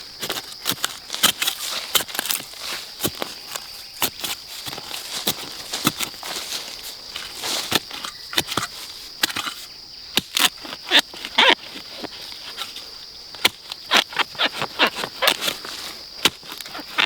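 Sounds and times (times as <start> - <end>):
dry leaves crunching and rustling: 0.0 - 8.9
high insect drone: 0.0 - 17.0.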